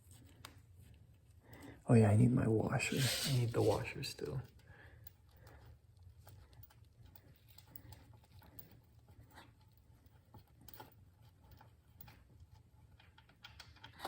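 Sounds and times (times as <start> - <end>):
small parts clicking and tapping: 4.3 - 14.0.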